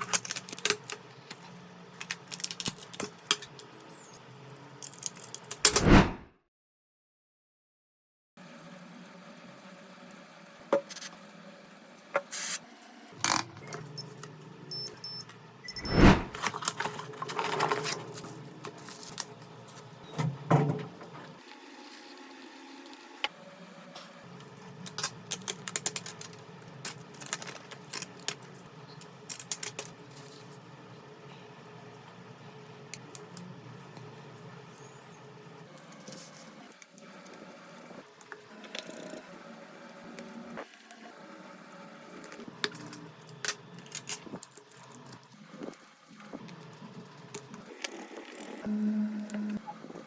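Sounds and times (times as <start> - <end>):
tools and phone parts clicking: 0.0 - 4.2, 4.8 - 5.8, 24.8 - 30.0
short scraping sounds: 15.8 - 16.4.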